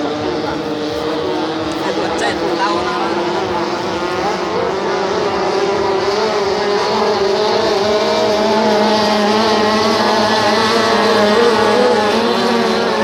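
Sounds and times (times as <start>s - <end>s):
outboard engines droning: 0.0s - 13.0s.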